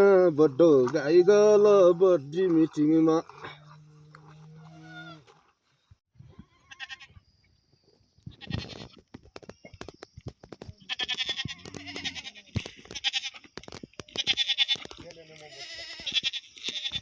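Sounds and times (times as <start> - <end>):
goats bleating: 0.0 - 5.4, 6.7 - 7.1, 10.9 - 13.5, 14.1 - 17.0.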